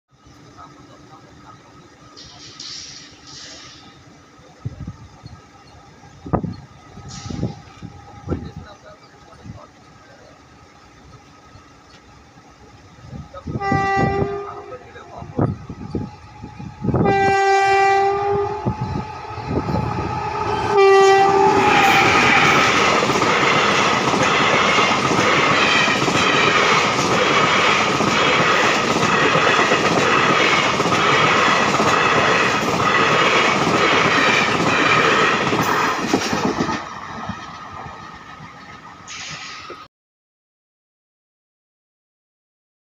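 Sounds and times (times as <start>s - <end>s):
train horn blasts: 13.5s - 15.0s, 16.8s - 22.6s.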